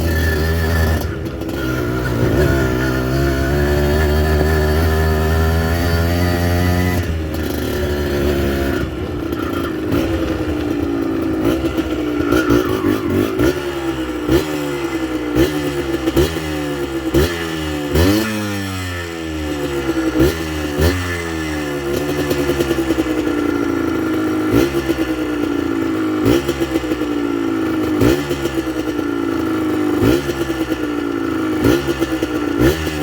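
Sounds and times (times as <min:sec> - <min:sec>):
motorcycle engine throttle blips: 0:00.0 - 0:18.4.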